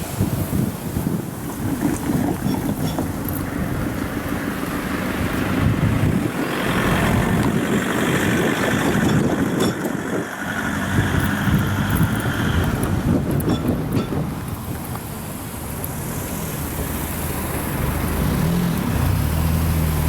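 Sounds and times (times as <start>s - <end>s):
electric train rumbling past: 0.0s - 14.7s.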